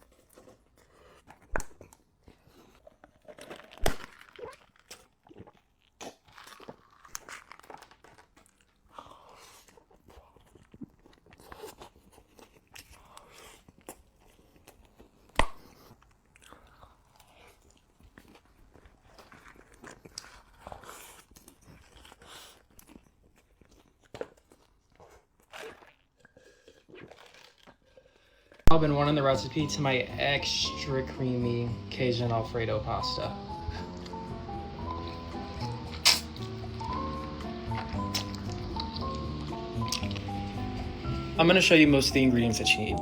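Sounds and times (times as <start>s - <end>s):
person chewing crunchy food: 0.0s - 41.4s
wet mouth clicks: 33.6s - 41.2s
sharp loud click: 36.0s - 36.4s.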